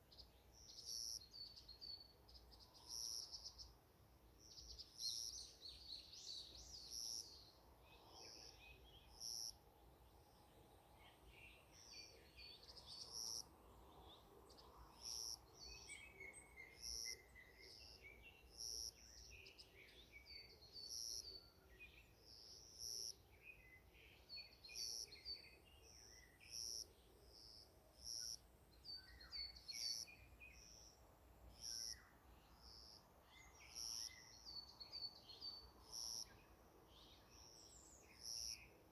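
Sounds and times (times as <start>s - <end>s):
birds chirping and twittering: 22.8s - 31.0s, 31.6s - 38.9s.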